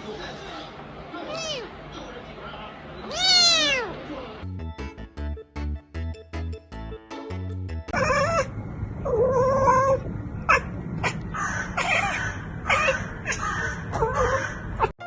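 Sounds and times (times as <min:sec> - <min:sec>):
cat meowing: 0:01.3 - 0:01.7, 0:03.1 - 0:04.0, 0:07.9 - 0:08.5
low background rumble: 0:07.9 - 0:15.0.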